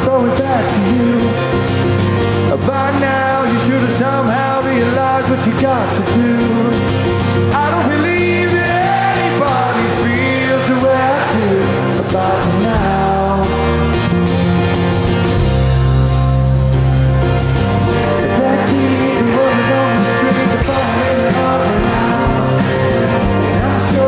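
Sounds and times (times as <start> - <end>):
rock band playing live: 0.0 - 24.0
lead vocal singing: 2.5 - 13.8, 18.0 - 24.0.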